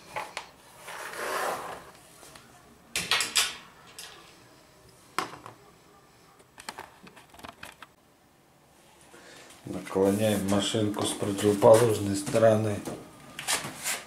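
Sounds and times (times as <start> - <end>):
scraping rub: 0.7 - 1.9, 13.4 - 14.0.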